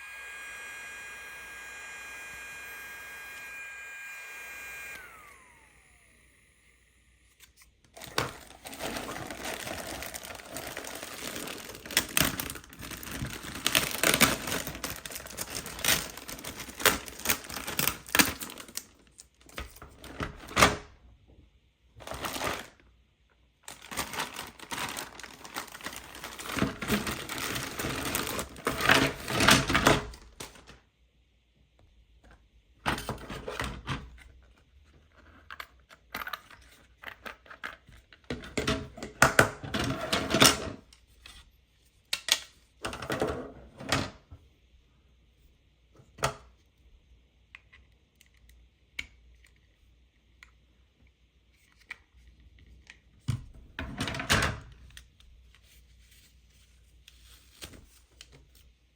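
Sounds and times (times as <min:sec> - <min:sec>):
plastic parts clicking and clattering: 0:07.4 - 0:20.8, 0:23.7 - 0:30.8
packaging rustling: 0:07.9 - 0:20.6, 0:22.0 - 0:22.8, 0:23.6 - 0:30.8.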